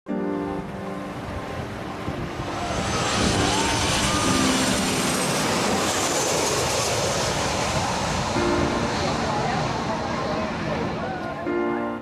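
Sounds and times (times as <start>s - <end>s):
jet airliner engines passing overhead: 0.3s - 12.0s
faint gliding whines: 1.0s - 11.5s.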